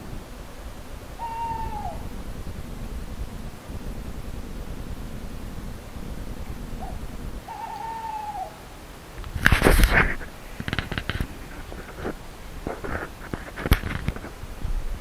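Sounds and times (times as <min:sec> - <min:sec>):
owl hooting: 0:00.0 - 0:14.6
soft rustles and clicks: 0:06.4 - 0:15.0
rustling crash: 0:08.7 - 0:14.8.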